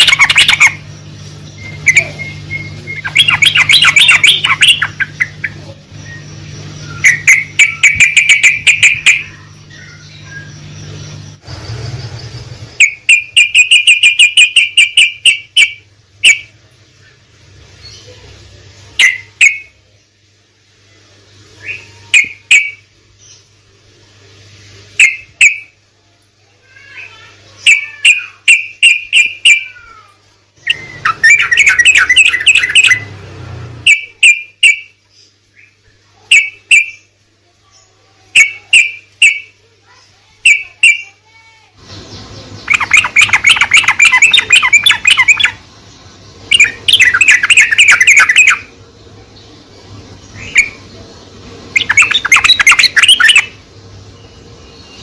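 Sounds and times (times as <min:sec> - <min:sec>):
bird whistling and chattering: 0:00.0 - 0:11.3, 0:12.8 - 0:16.6, 0:19.0 - 0:19.8, 0:21.6 - 0:22.8, 0:25.0 - 0:25.8, 0:27.0 - 0:30.0, 0:30.6 - 0:33.2, 0:33.8 - 0:35.0, 0:35.6 - 0:37.1, 0:38.3 - 0:39.6, 0:40.4 - 0:41.2, 0:41.9 - 0:45.7, 0:46.4 - 0:48.8, 0:50.2 - 0:50.9, 0:51.7 - 0:53.6
faint low hum: 0:00.0 - 0:55.0.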